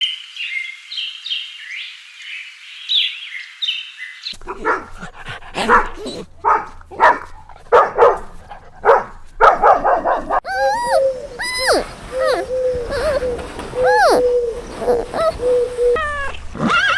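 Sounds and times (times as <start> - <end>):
dog barking: 4.4 - 13.1
high-pitched chirping: 10.5 - 15.5.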